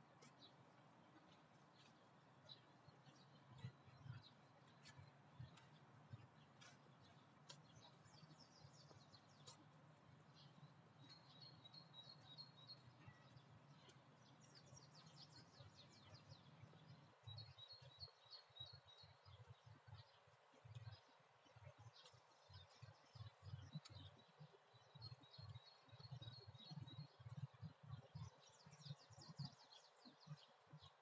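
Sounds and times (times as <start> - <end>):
low steady background hum: 0.0 - 31.0
songbirds chirping: 0.0 - 31.0.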